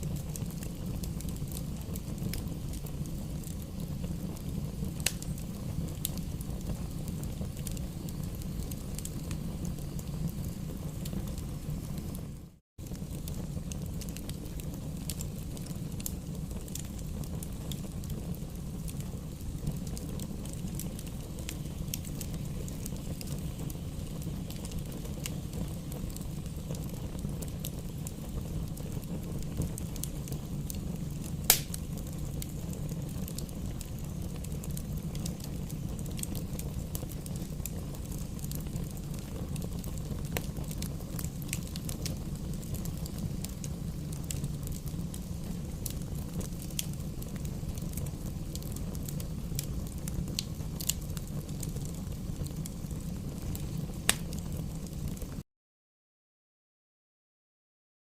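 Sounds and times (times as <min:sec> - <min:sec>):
firewood crackling: 0:00.0 - 0:55.4
wood fire rumbling: 0:00.0 - 0:55.4
sharp loud pop of firewood: 0:31.5 - 0:31.7.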